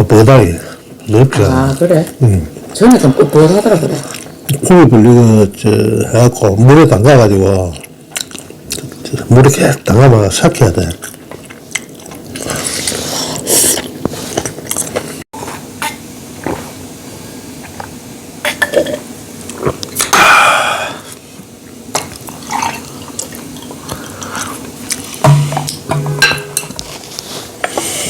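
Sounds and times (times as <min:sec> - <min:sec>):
wet chewing: 0:07.6 - 0:09.3, 0:10.9 - 0:15.2, 0:21.9 - 0:25.9.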